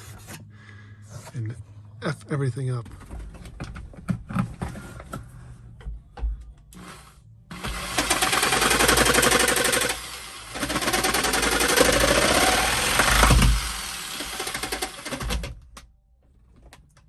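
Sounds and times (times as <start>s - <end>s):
power cutting tool nibbling material: 6.8s - 15.3s.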